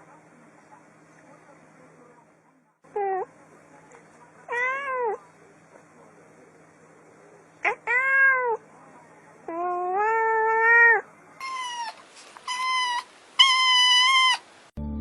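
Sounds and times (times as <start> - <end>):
cat meowing: 4.5 - 5.2, 7.6 - 8.6, 9.5 - 14.4.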